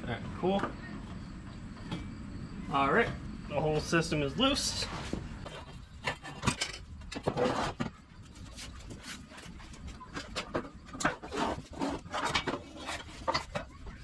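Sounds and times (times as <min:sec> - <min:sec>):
metal exhaust pipes clunking: 0:04.6 - 0:08.0.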